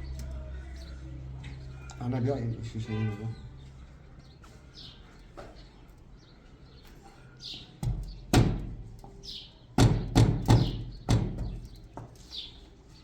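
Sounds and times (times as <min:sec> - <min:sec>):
small birds chirping: 0:00.0 - 0:13.0
heavy knocks: 0:09.8 - 0:11.6.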